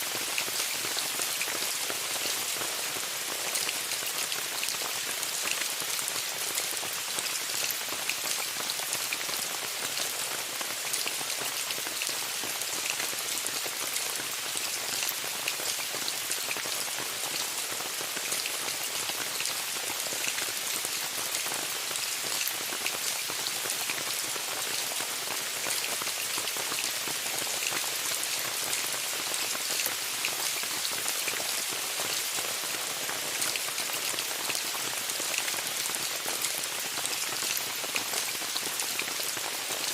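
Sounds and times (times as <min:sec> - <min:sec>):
rain on a tent: 0:00.0 - 0:39.9.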